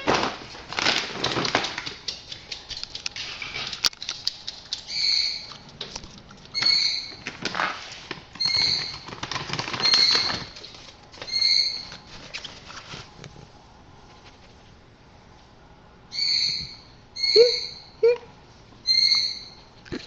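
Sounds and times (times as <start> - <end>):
bird scrabbling and rustling: 0.8 - 14.7
bird chirps: 16.1 - 18.0, 18.9 - 19.6.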